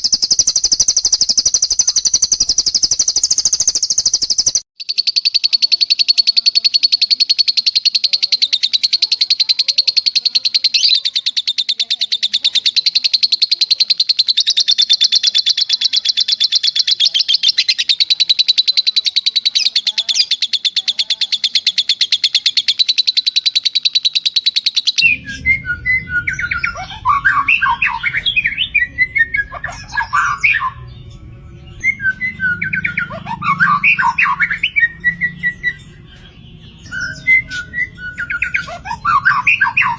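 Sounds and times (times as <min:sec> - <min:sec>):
lovebird trilling: 0:00.0 - 0:39.9
songbird singing varied phrases: 0:00.0 - 0:39.9
low background rumble: 0:25.0 - 0:33.2.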